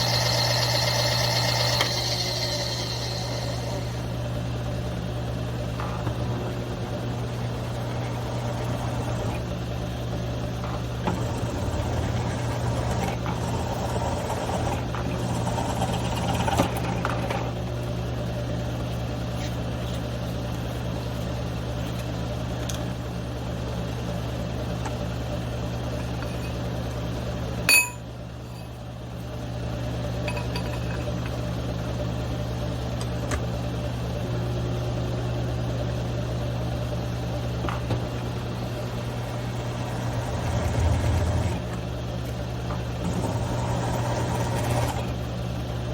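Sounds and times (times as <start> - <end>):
drill bit cutting steel: 0.0 - 4.2
milling machine motor humming: 0.0 - 17.6, 37.5 - 45.9.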